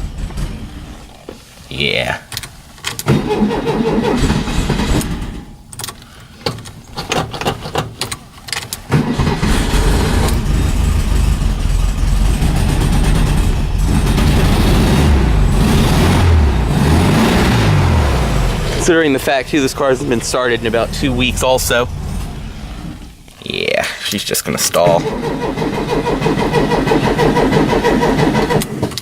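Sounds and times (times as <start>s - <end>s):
car engine cold starting: 3.0s - 5.6s, 8.8s - 23.3s, 24.8s - 29.0s
engine idling unevenly: 9.0s - 23.8s.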